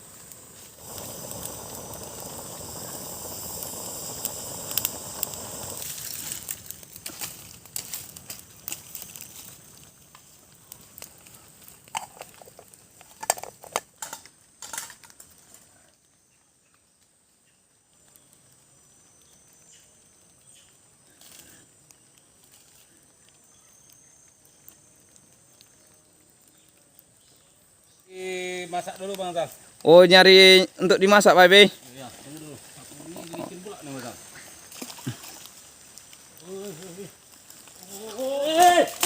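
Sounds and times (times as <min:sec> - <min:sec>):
campfire crackling: 0:00.0 - 0:39.0
faint outdoor background: 0:00.0 - 0:39.0.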